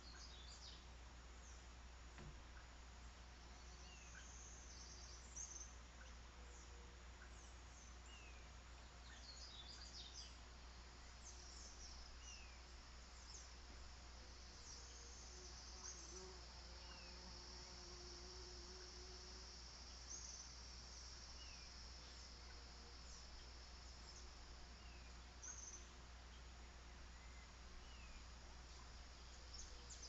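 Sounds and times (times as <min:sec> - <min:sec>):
faint birds chirping: 0:00.0 - 0:30.0
low steady hum: 0:00.0 - 0:30.0
insect trill: 0:09.2 - 0:30.0.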